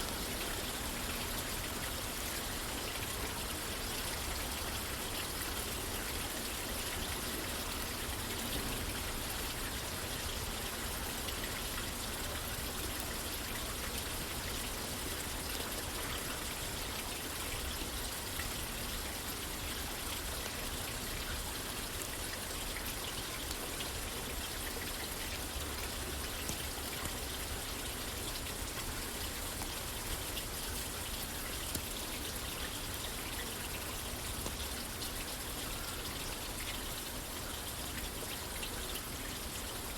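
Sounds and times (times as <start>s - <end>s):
rain falling on a roof: 0.0s - 39.9s
faint ticks: 31.6s - 32.0s.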